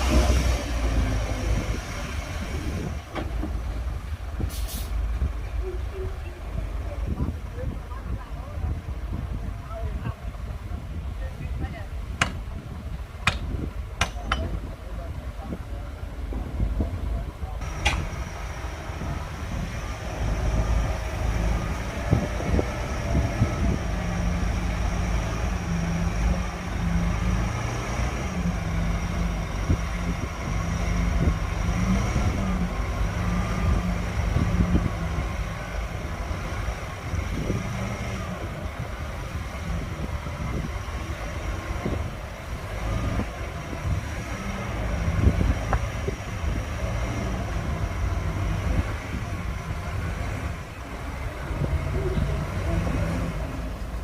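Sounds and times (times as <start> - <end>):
bulldozer diesel engine running: 0.0 - 54.0
steel tracks knocking and clanking: 2.8 - 4.0, 13.2 - 14.8, 16.2 - 19.3.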